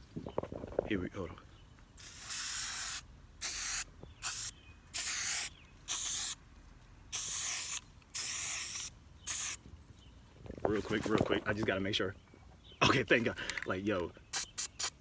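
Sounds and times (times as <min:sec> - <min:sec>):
aerosol spray can hissing: 0:02.0 - 0:06.4, 0:07.2 - 0:09.6, 0:14.4 - 0:15.0.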